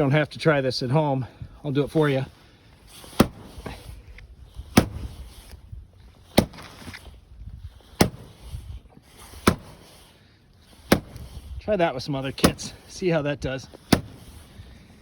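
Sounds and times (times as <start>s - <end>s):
sledgehammer striking rink wall: 3.1s - 3.6s, 4.7s - 5.2s, 6.3s - 7.0s, 8.0s - 8.4s, 9.4s - 9.9s, 10.8s - 11.4s, 12.4s - 12.8s, 13.8s - 14.4s.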